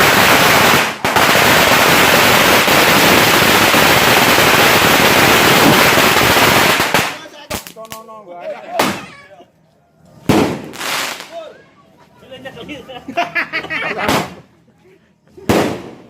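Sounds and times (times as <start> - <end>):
firecrackers crackling: 0.0 - 8.1, 8.8 - 9.2, 10.1 - 11.5, 13.9 - 14.5, 15.4 - 16.0
firecracker pops: 5.5 - 8.0, 8.8 - 9.1, 10.2 - 11.4, 14.0 - 14.4, 15.4 - 16.0
people talking: 7.1 - 10.0, 11.2 - 15.5.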